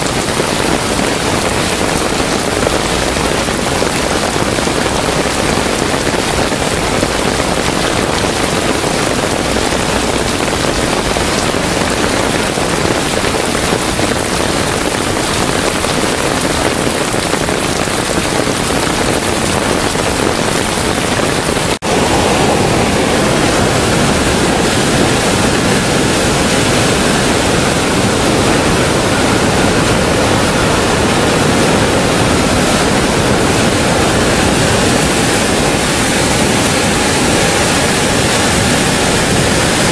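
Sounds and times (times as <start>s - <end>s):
heavy downpour: 0.0s - 39.9s
rushing water: 0.0s - 39.9s.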